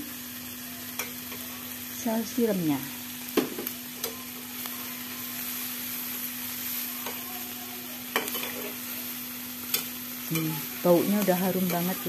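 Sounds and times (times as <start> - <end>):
food sizzling in a pan: 0.0 - 12.0
spatula clacking against pan: 8.1 - 8.7.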